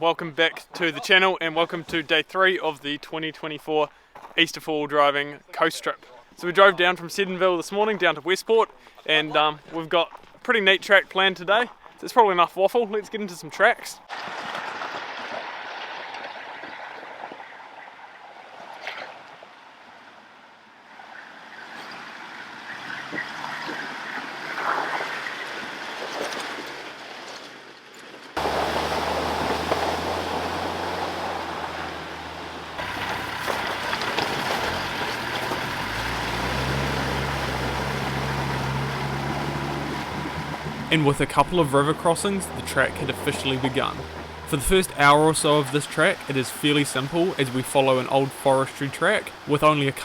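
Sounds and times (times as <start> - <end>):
off-road vehicle engines humming: 20.9 - 25.9, 28.4 - 50.0.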